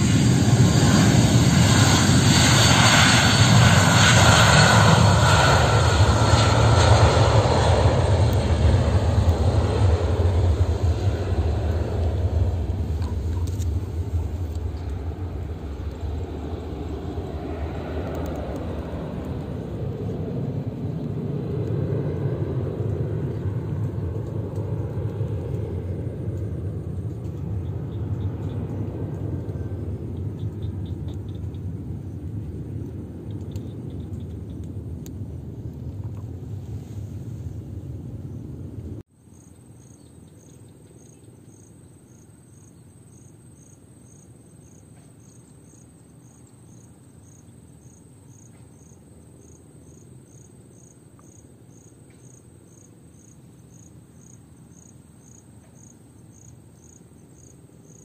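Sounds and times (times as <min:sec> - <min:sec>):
cricket chirping: 0:00.0 - 0:34.7, 0:39.2 - 0:58.0
jet engine rumble: 0:00.0 - 0:39.1.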